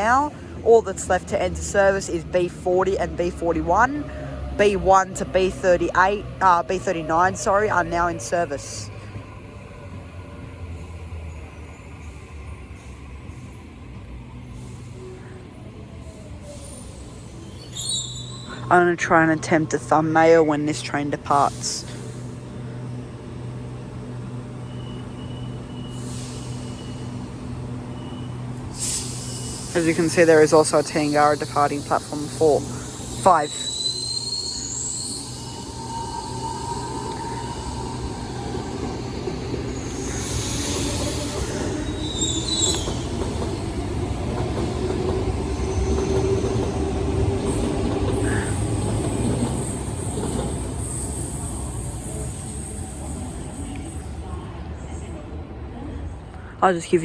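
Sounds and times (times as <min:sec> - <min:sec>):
electric train low hum: 0:00.0 - 0:56.8
high wheel squeals: 0:16.6 - 0:18.7, 0:24.6 - 0:43.8, 0:47.4 - 0:54.0
short air hiss: 0:28.7 - 0:29.8.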